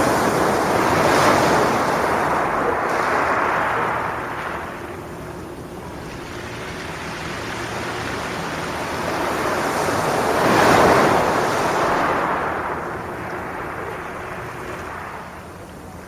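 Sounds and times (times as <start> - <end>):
sea waves washing ashore: 0.0 - 16.0.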